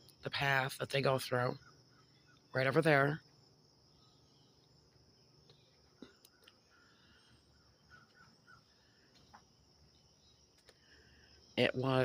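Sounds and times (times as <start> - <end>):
high insect-like hum: 0.0 - 12.0
soft clicks: 5.4 - 6.6, 10.6 - 10.8.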